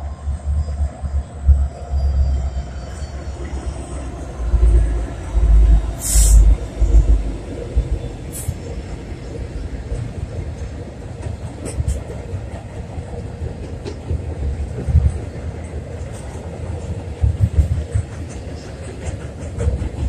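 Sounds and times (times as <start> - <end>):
train rumbling over bridge: 0.0 - 20.0
sharp hiss: 6.0 - 6.6.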